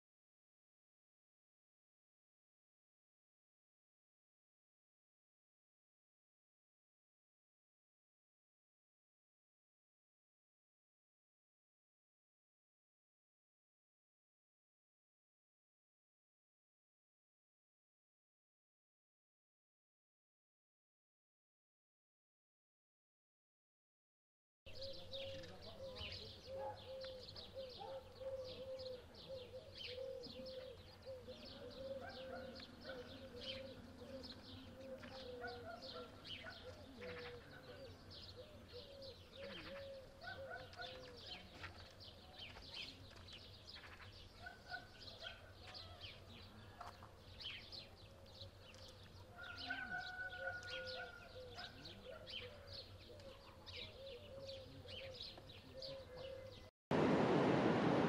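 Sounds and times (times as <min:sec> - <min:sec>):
birds chirping: 0:24.7 - 0:56.7.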